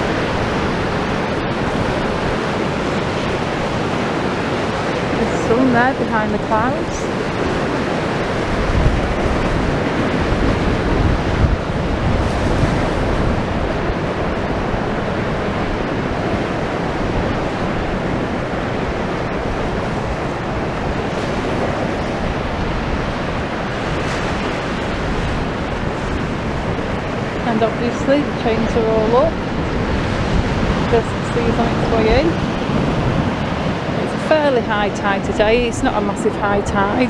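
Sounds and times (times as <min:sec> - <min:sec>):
sea surf washing in: 0:00.0 - 0:37.0
wind rumbling on microphone: 0:00.0 - 0:37.0.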